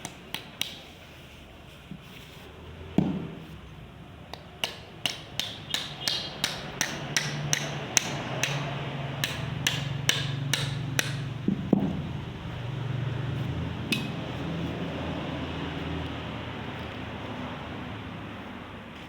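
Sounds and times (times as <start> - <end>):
hammer tapping on bamboo: 0.0 - 0.8, 4.3 - 12.0.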